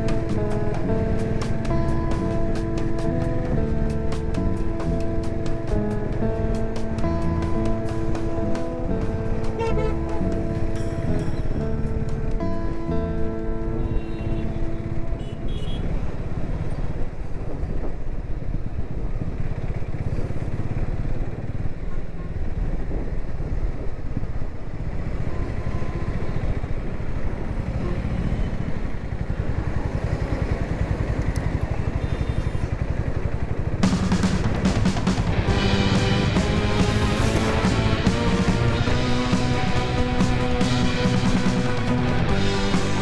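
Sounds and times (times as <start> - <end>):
motorcycle engine running: 0.0 - 17.4, 27.3 - 43.0.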